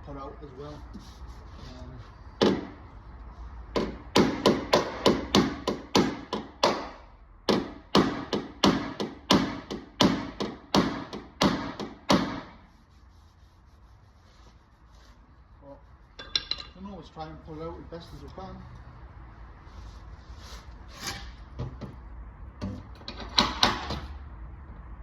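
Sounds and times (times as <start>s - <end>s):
hammer striking sheet metal: 3.8s - 12.6s.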